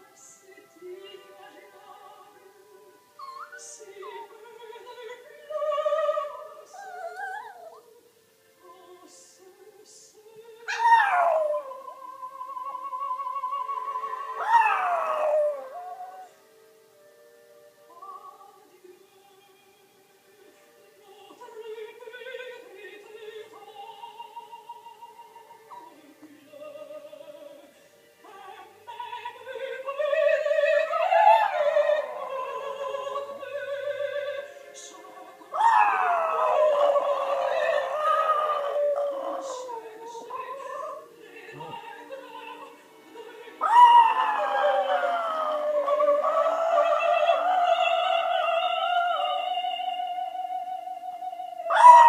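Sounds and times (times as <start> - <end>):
music from television: 0.0 - 52.0
opera singing on tv: 0.0 - 52.0
dog howling: 3.2 - 4.3, 6.1 - 7.9, 10.7 - 12.1, 14.1 - 16.3, 35.5 - 39.9, 43.6 - 47.7, 51.7 - 52.0.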